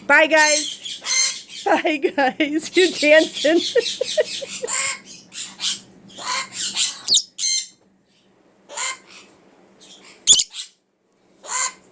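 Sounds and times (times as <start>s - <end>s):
parrot squawking: 0.5s - 1.6s, 3.6s - 7.8s, 8.7s - 9.3s, 9.9s - 10.7s, 11.4s - 11.8s.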